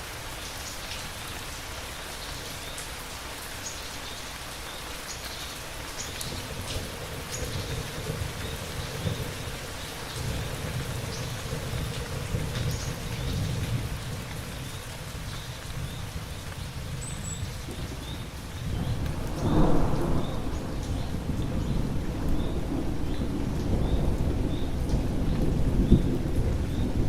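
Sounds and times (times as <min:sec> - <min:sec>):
steady rain: 0:00.0 - 0:27.0
thunder rumbling: 0:06.4 - 0:27.0.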